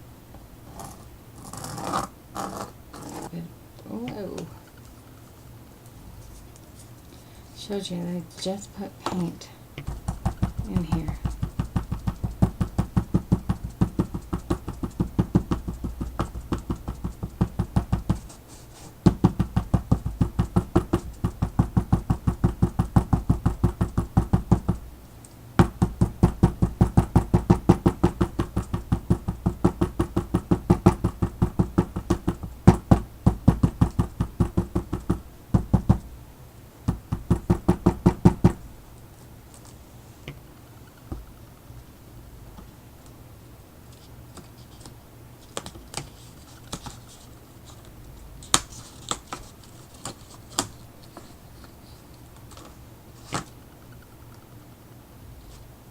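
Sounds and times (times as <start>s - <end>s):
brush dabbing tapping table: 9.0s - 25.0s, 25.6s - 36.2s, 36.9s - 38.7s.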